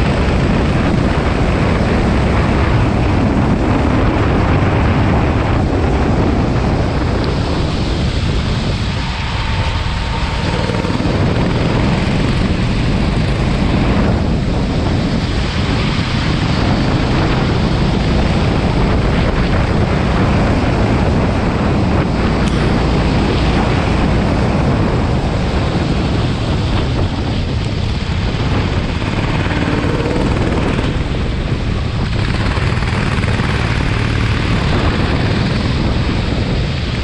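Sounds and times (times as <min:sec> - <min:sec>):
wind buffeting microphone: 0:00.0 - 0:37.0
kart engine: 0:06.4 - 0:20.9, 0:22.4 - 0:25.5, 0:27.3 - 0:36.1.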